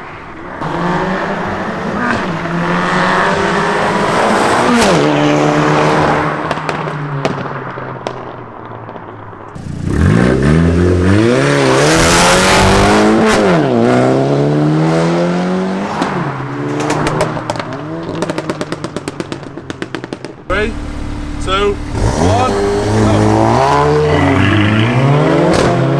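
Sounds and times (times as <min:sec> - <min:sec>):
car engine revving: 0:00.6 - 0:06.4, 0:09.6 - 0:18.4, 0:20.5 - 0:25.9.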